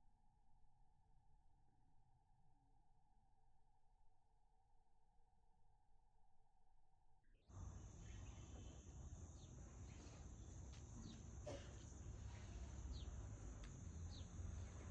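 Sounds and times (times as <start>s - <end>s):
falling bird chirps: 7.6s - 14.9s.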